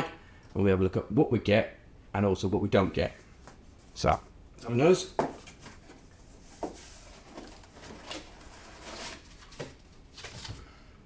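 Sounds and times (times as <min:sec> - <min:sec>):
packaging rustling: 0:05.4 - 0:10.7.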